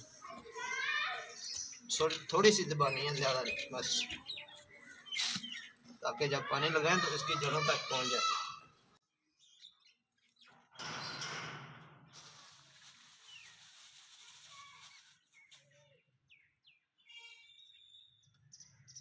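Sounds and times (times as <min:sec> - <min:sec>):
small birds chirping: 0:00.0 - 0:11.2, 0:12.1 - 0:19.0
rustling noise: 0:12.1 - 0:15.7.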